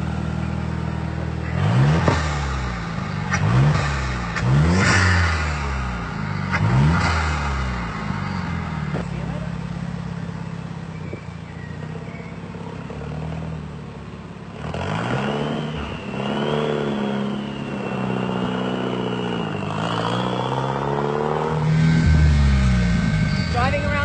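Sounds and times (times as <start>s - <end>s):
car engine revving: 0.0s - 24.0s
thin high whine: 21.6s - 24.0s.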